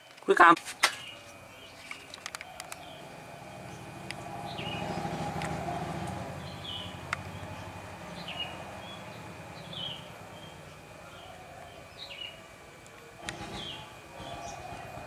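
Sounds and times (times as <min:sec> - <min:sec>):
bird chirping: 0:00.0 - 0:15.0
sharp clicks: 0:01.8 - 0:02.9, 0:07.1 - 0:07.3, 0:12.8 - 0:14.9.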